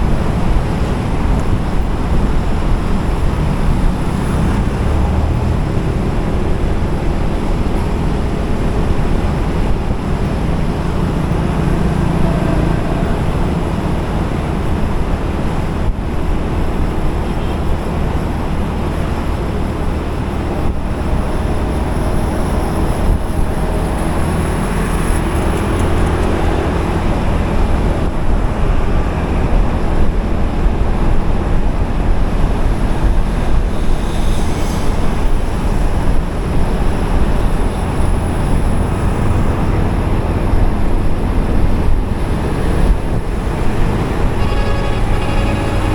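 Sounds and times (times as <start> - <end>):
road noise of passing vehicles: 0.0 - 45.9
motorcycle engine: 39.6 - 45.9.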